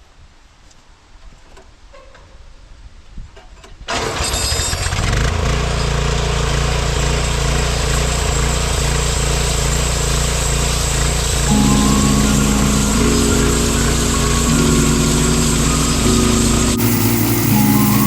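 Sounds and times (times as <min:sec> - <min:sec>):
small gasoline engine running: 0:03.9 - 0:11.5, 0:16.8 - 0:18.0.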